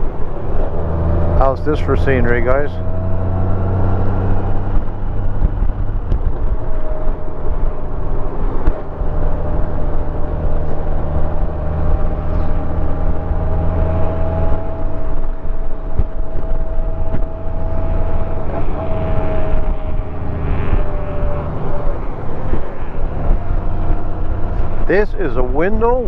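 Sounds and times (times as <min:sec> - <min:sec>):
rushing wind: 0:00.0 - 0:26.0
steady high whine: 0:00.0 - 0:26.0
motorcycle engine running: 0:08.7 - 0:25.8.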